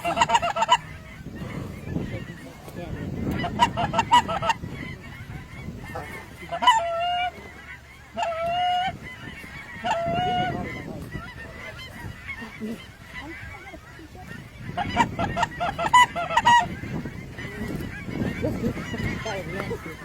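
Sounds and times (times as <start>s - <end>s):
faint goose calling: 0.0s - 20.0s
geese honking: 0.0s - 20.0s.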